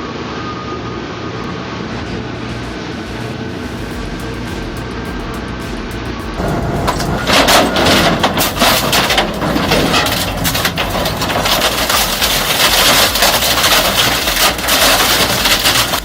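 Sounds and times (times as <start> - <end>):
shredder grinding wood: 6.4 - 16.0
wood cracking and snapping: 6.9 - 16.0.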